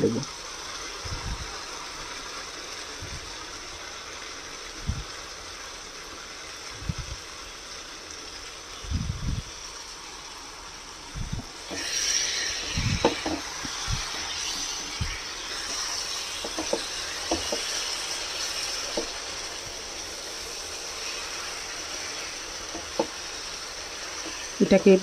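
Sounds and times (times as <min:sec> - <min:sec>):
chicken sizzling in a pan: 0:00.0 - 0:25.0
spatula knocking and scraping pan: 0:11.7 - 0:17.9, 0:18.9 - 0:19.2, 0:22.7 - 0:23.2.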